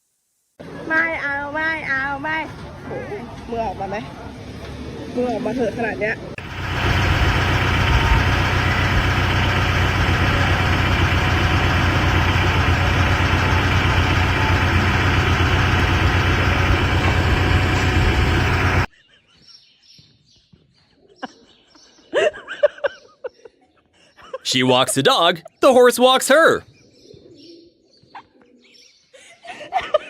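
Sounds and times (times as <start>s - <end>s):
engine running loudly: 6.4s - 18.9s.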